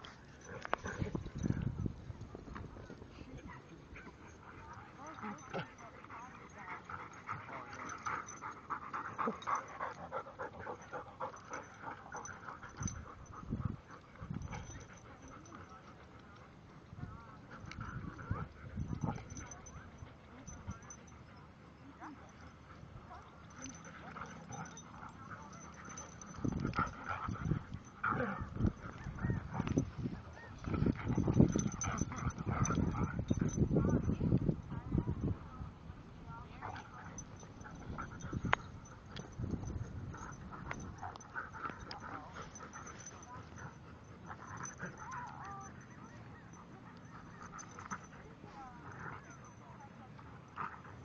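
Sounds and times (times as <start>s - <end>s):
dog panting: 0.0s - 1.7s, 3.1s - 34.0s, 36.6s - 51.0s
dogs yelping: 23.4s - 33.6s, 40.1s - 49.6s.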